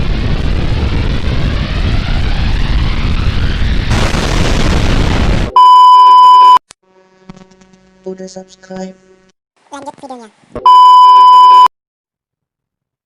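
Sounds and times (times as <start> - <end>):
loud rumbling with rising whine: 0.0 - 5.6
loud electronic beep: 5.5 - 6.6, 10.7 - 11.7.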